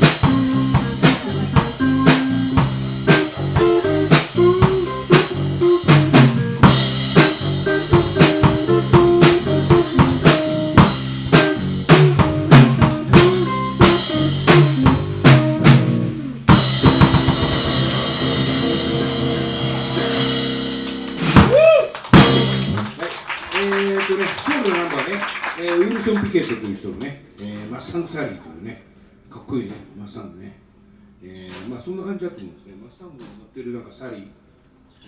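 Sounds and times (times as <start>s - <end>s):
live band playing soul groove: 0.0s - 23.0s.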